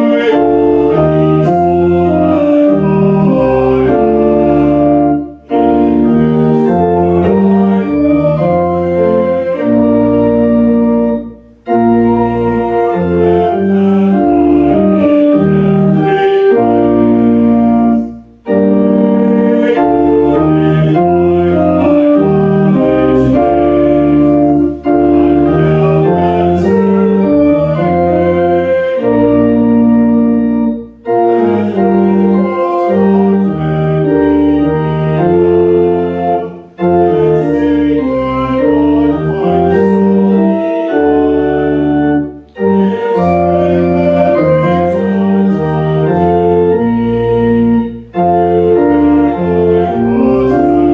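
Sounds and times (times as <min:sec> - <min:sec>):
organ playing held chords: 0:00.0 - 0:50.9.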